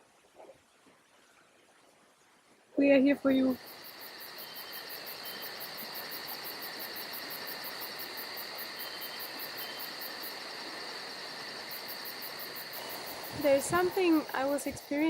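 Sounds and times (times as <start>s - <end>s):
insects trilling: 2.9s - 15.0s
fast pulsing insect chirp: 3.2s - 15.0s.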